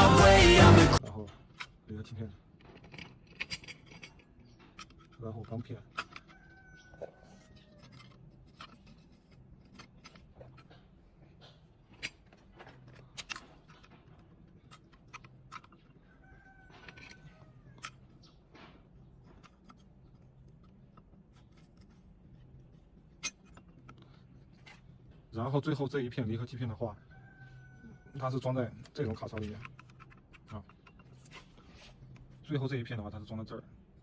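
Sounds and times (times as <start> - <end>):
metal clutch plates clinking: 2.5 - 6.7, 7.9 - 21.2.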